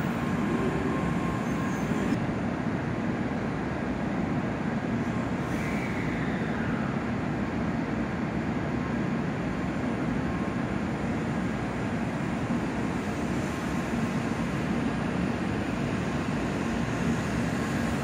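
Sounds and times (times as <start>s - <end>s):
train rumbling slowly: 0.0s - 18.0s.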